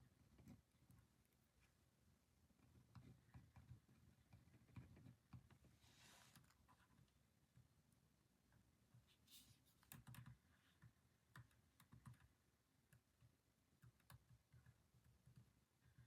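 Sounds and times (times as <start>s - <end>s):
clicks and taps at a desk: 2.6s - 5.7s.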